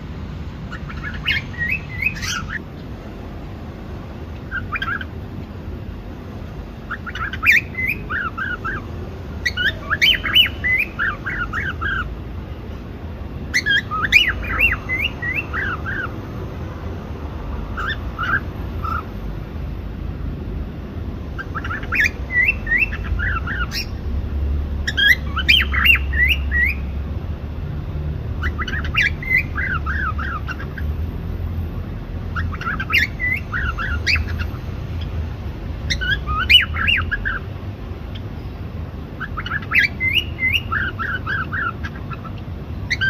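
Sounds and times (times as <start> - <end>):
cockatiel chirping and whistling: 0.8 - 2.6, 4.5 - 5.1, 6.9 - 8.8, 9.4 - 12.1, 13.5 - 16.1, 17.8 - 19.1, 21.4 - 24.0, 24.8 - 26.9, 28.4 - 30.8, 32.4 - 34.6, 35.9 - 37.4, 39.2 - 43.0.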